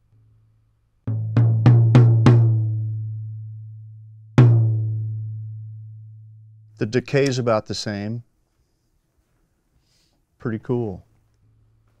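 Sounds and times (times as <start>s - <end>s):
tom-tom drum hits: 4.4s - 5.4s.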